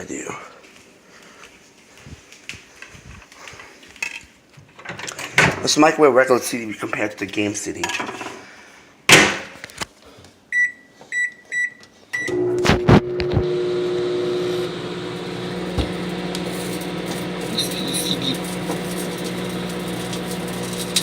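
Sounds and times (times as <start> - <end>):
short keypad beeps: 10.6 - 12.4
microwave humming: 12.2 - 21.0
microwave clicks: 15.1 - 21.0
microwave door shutting: 15.2 - 21.0.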